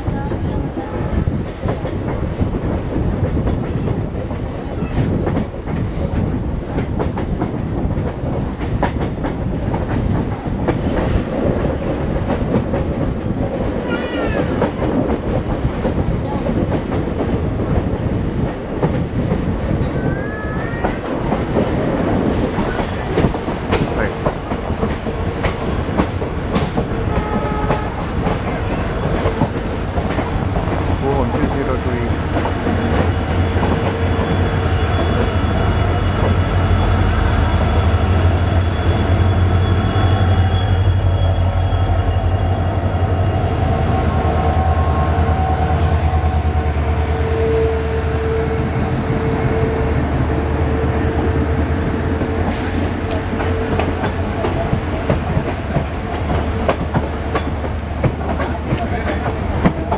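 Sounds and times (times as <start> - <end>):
faint wheel squeals: 11.2 - 14.3
train wheels clattering: 20.7 - 37.8, 51.6 - 59.9.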